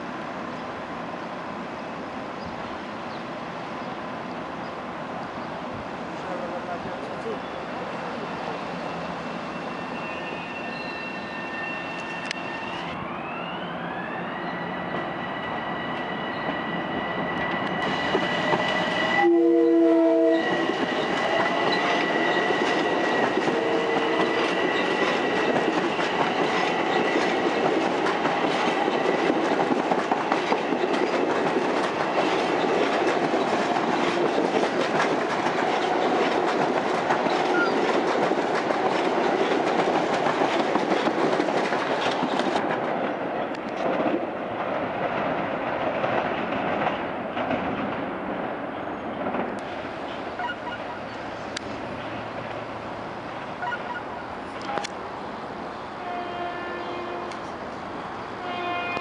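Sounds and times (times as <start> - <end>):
electric train whine: 7.1 - 42.6
train wheels clickety-clack: 16.5 - 19.2, 20.3 - 49.7
train horn blast: 19.1 - 22.1, 22.8 - 24.6, 56.0 - 57.5, 58.4 - 59.0.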